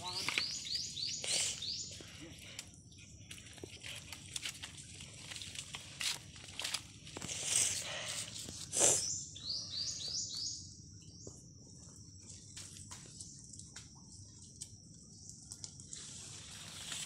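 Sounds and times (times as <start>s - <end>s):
footsteps in leaf litter: 3.9s - 8.9s, 16.1s - 17.0s.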